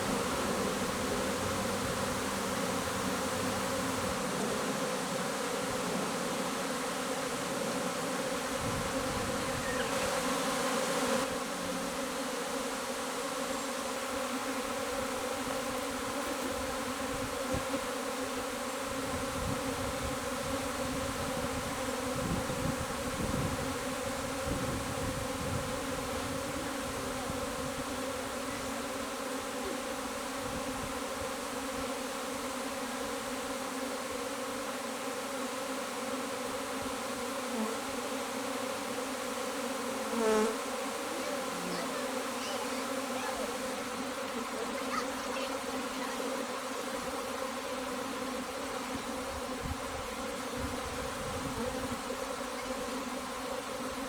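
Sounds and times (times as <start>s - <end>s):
honey bees buzzing: 0.0s - 54.0s.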